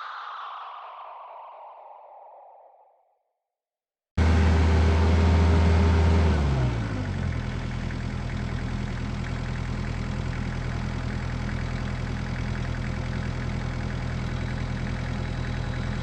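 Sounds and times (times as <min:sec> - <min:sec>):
excavator diesel engine running: 0:04.2 - 0:16.0.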